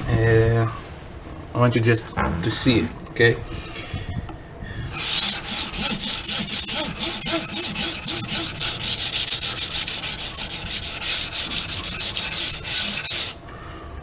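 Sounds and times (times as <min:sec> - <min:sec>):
knife blade rasping on sandpaper: 0:05.0 - 0:13.4.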